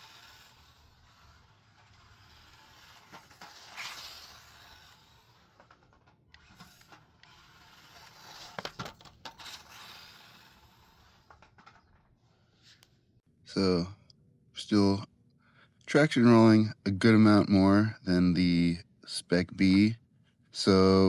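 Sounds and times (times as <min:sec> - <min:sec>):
tyres scrubbing on surface: 0:00.0 - 0:11.9
toy truck motor whirring: 0:00.0 - 0:12.9
sharp clicks and knocks: 0:11.2 - 0:12.1.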